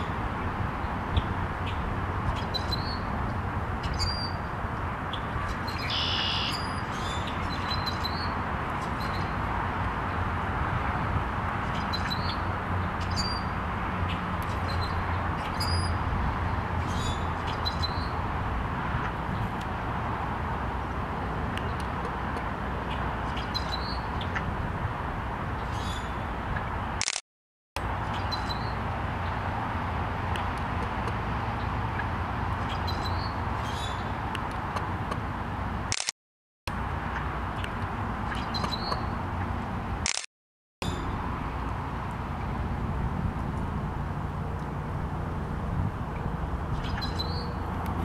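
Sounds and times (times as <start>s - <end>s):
high bird chirps: 5.7s - 8.3s.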